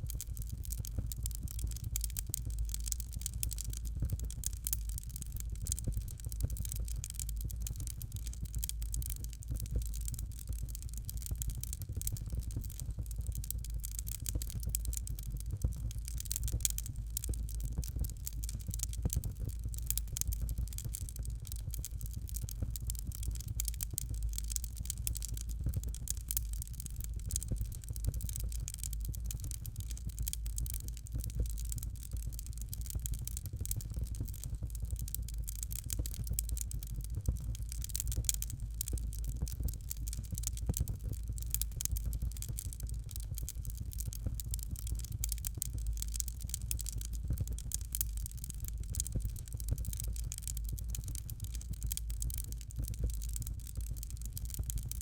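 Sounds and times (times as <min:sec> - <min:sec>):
fire crackling and popping: 0:00.0 - 0:55.0.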